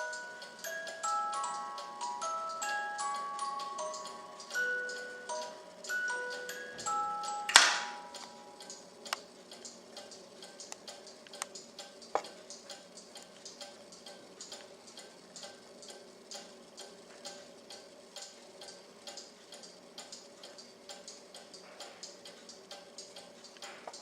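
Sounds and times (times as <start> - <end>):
clock ticking: 0.0 - 24.0
loud clock click: 0.0 - 24.0.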